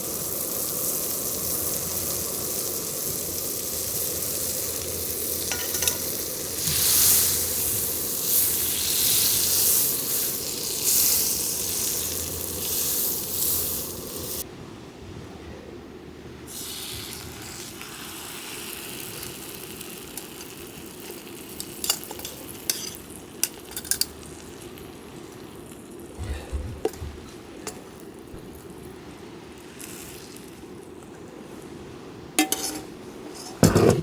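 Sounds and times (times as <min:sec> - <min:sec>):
food sizzling in a pan: 0:00.0 - 0:14.5, 0:16.5 - 0:26.2, 0:27.6 - 0:31.0
metal utensil clicking on pan: 0:05.4 - 0:06.1, 0:21.1 - 0:24.2, 0:32.4 - 0:33.6.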